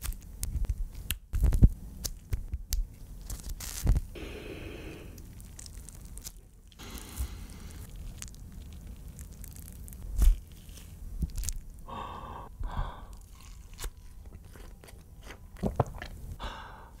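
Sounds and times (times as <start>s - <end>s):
person chewing a burger: 4.8s - 16.4s.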